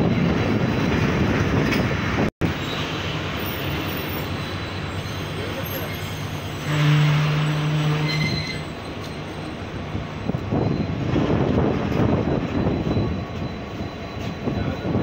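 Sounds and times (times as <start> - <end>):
loud low train horn blast: 6.5 - 8.6.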